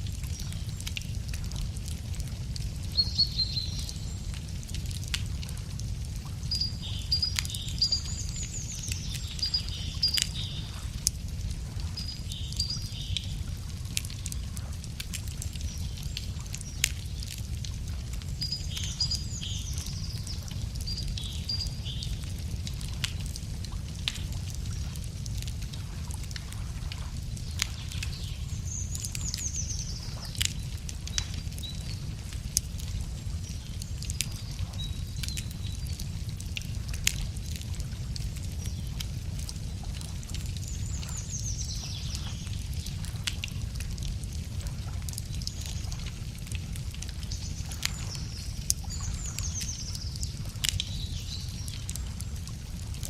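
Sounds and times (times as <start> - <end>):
campfire crackling and popping: 0.0 - 53.0
songbird singing: 2.8 - 4.5, 6.4 - 11.0, 11.9 - 13.4, 18.2 - 22.2, 27.4 - 32.2, 47.3 - 52.0.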